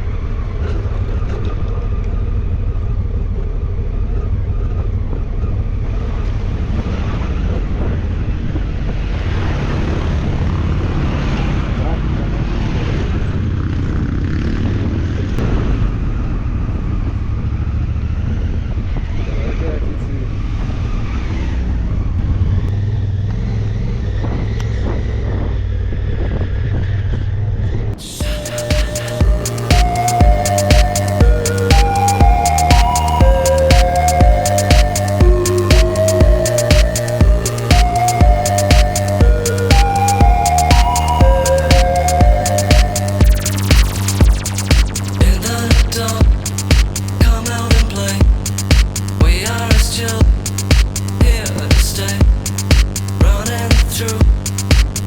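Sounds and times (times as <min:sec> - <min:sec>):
wind and road noise: 0:00.0 - 0:28.2
wind rumble on microphone: 0:05.0 - 0:13.6, 0:23.8 - 0:28.0
vehicle engine rumbling: 0:27.5 - 0:55.0
motorcycle engine running: 0:43.2 - 0:55.0.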